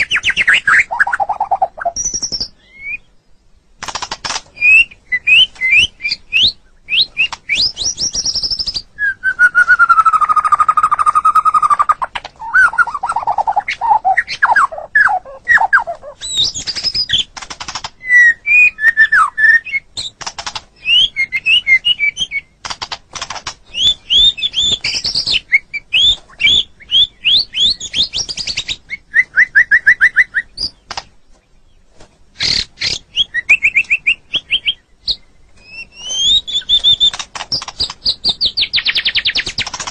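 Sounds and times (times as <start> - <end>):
songbird singing whistles: 0.0 - 3.2, 4.6 - 17.3, 18.0 - 20.2, 20.8 - 22.6, 23.6 - 30.9, 32.4 - 39.7
bird sharp clicking notes: 3.8 - 5.8, 16.6 - 18.0, 22.6 - 25.4, 30.1 - 31.2, 36.0 - 39.9.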